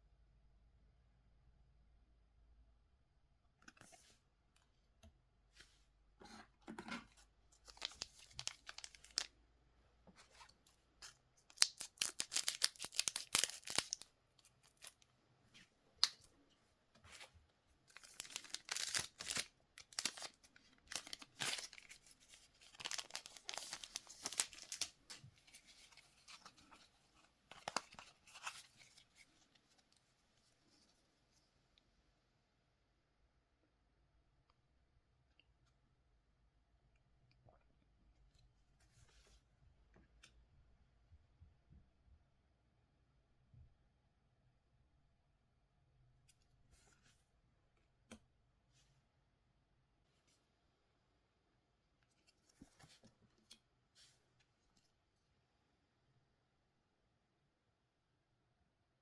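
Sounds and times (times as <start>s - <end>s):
wrappers tearing and crinkling: 7.7s - 9.3s, 11.5s - 14.0s, 17.9s - 24.9s.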